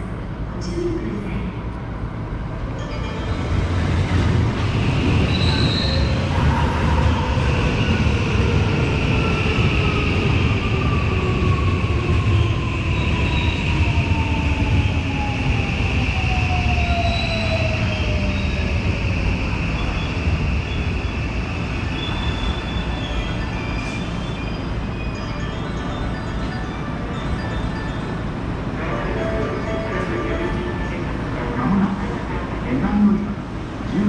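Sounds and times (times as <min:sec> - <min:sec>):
train rumble: 0:00.0 - 0:34.0
high brake squeal: 0:05.2 - 0:06.2, 0:21.8 - 0:26.3.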